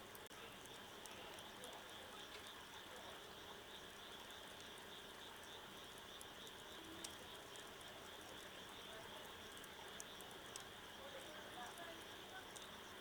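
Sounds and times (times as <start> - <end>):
faint wood fire crackling: 0.0 - 13.0
insects chirring: 0.6 - 13.0.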